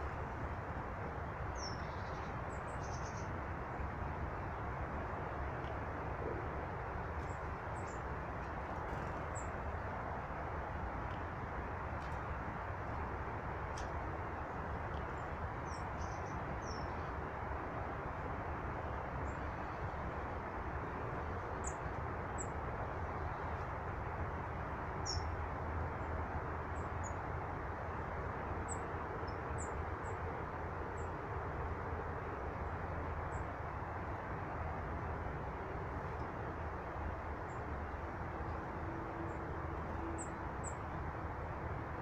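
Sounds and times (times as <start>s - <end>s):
steady rushing noise: 0.0s - 42.0s
small birds chirping: 1.3s - 3.8s, 13.7s - 17.2s, 25.0s - 25.4s.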